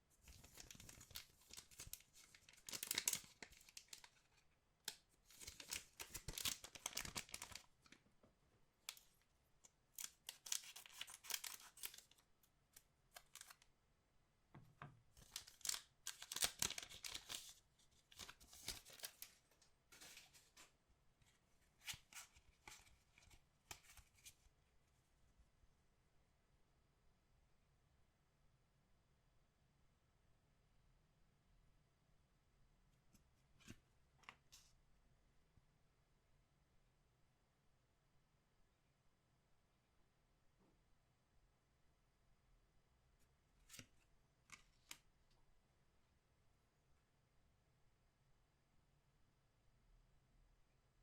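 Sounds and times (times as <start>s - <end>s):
packaging tearing and crinkling: 0.3s - 4.0s, 5.2s - 7.7s, 10.0s - 12.2s, 13.2s - 13.6s, 15.2s - 17.5s.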